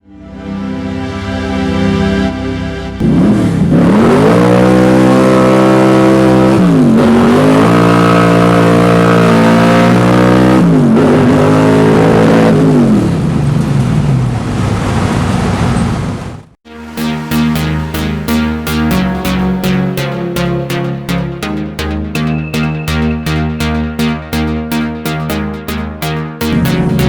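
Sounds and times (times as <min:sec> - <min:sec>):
car engine accelerating: 0:03.0 - 0:15.8.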